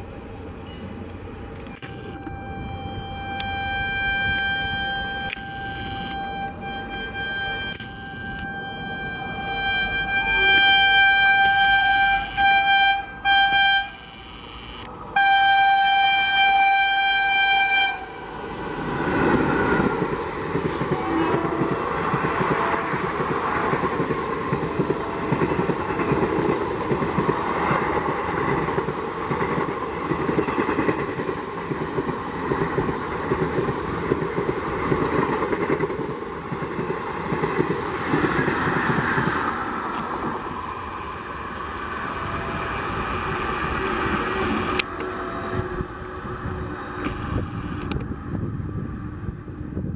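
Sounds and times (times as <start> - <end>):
train horn blasts: 1.8 - 18.8, 20.7 - 23.2
train clattering on rails: 18.4 - 40.8.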